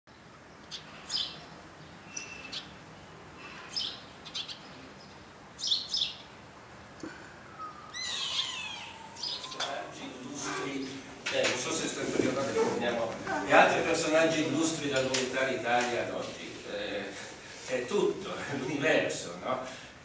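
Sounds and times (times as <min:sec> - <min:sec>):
bird chirping: 0:00.1 - 0:06.4, 0:07.4 - 0:11.1.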